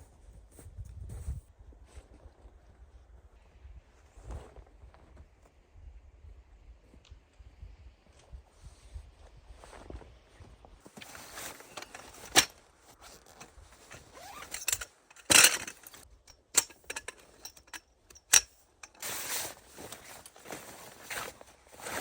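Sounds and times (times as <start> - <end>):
camping gear clicks and knocks: 10.8 - 22.0
rustling: 10.8 - 22.0.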